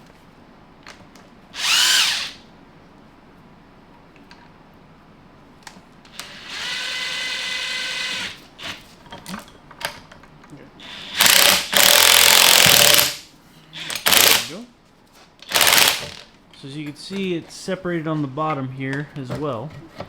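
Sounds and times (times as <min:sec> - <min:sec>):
handheld power tool spinning: 0:01.6 - 0:02.4, 0:06.2 - 0:08.8, 0:10.9 - 0:13.2, 0:13.8 - 0:14.5, 0:15.4 - 0:16.2.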